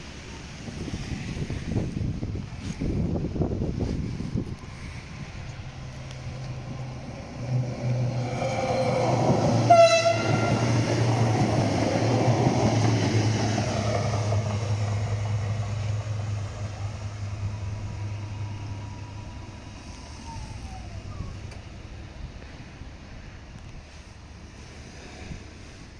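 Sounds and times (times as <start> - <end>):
train passing: 0.0 - 25.9
train horn: 8.7 - 10.8.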